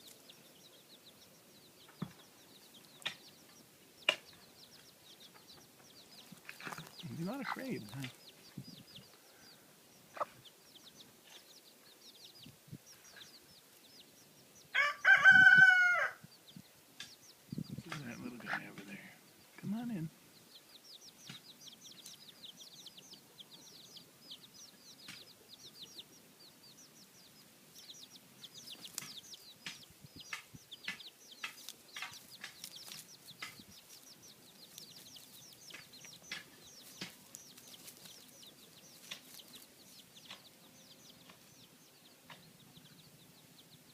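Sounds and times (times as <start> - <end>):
chicks peeping: 0.0 - 43.9
hen clucking softly: 2.8 - 13.5.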